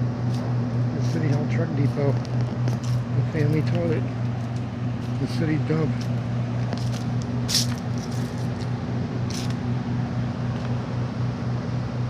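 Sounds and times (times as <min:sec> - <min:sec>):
machinery humming: 0:00.0 - 0:12.0.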